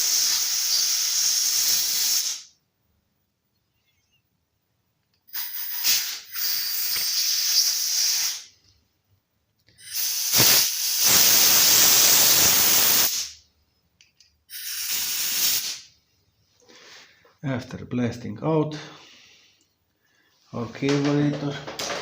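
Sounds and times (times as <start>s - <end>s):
compressed air hissing blasts: 0.0s - 2.6s, 5.3s - 8.6s, 9.8s - 13.4s, 14.5s - 16.0s.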